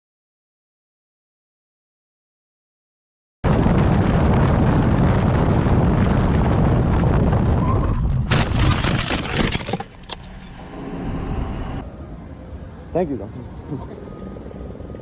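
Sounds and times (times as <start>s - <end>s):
road and wind rumble: 3.4s - 15.0s
loud vehicle crash: 7.5s - 11.2s.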